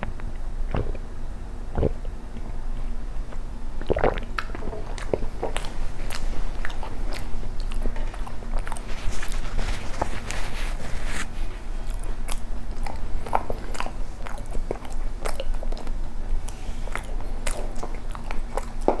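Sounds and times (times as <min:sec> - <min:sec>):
chewing bread: 0:03.3 - 0:19.0
tissue rustling: 0:08.8 - 0:11.6.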